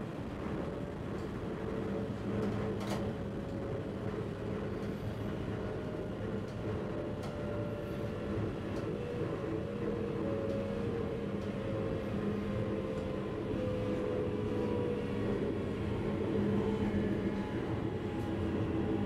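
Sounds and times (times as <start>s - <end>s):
train rumble with low hum: 0.0s - 19.0s.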